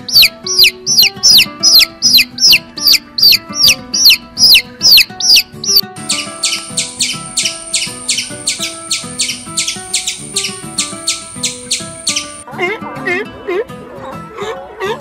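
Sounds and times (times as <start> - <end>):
bird chirping: 0.0 - 12.5
background music: 0.0 - 15.0.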